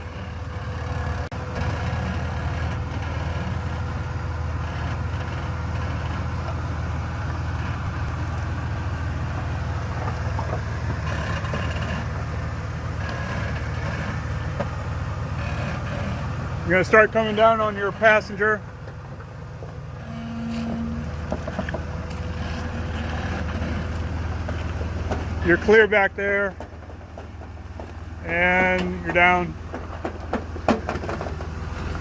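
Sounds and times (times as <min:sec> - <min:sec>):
car engine running at low speed: 0:00.0 - 0:32.0.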